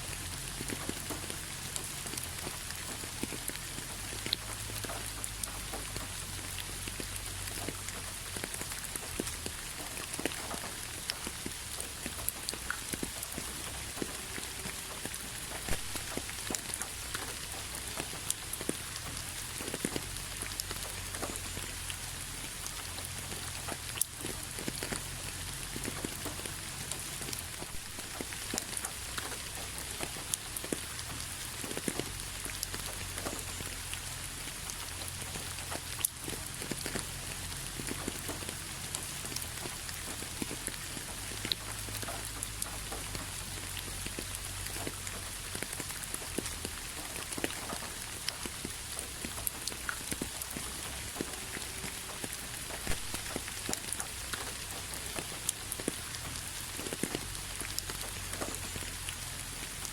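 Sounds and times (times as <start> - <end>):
rain ticking on hard surface: 0.0 - 59.9.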